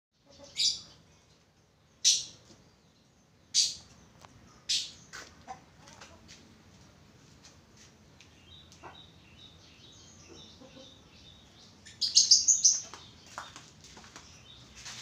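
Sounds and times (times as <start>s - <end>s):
bird chirping: 0.2s - 5.2s, 8.1s - 15.0s.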